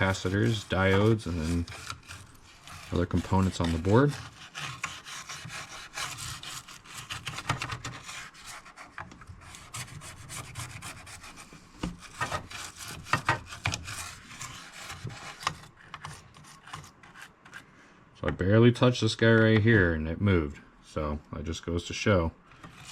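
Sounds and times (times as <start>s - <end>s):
toothbrush scrubbing circuit board: 0.0s - 8.9s.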